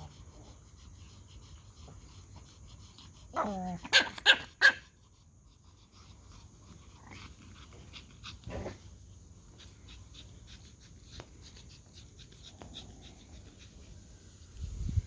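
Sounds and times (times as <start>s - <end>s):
dogs panting: 0.0s - 14.5s
small ticks: 9.6s - 13.9s.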